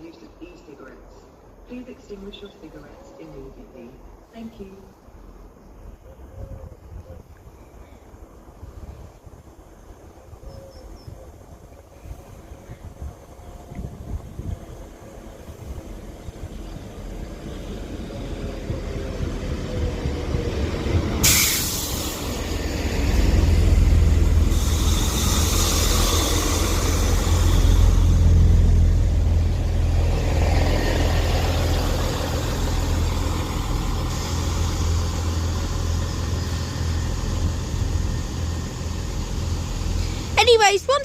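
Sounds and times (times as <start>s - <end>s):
diesel train rumble: 7.7s - 41.0s
air brakes hissing: 21.2s - 22.7s, 24.2s - 28.2s
short hiss of air: 21.2s - 22.7s, 24.4s - 27.9s.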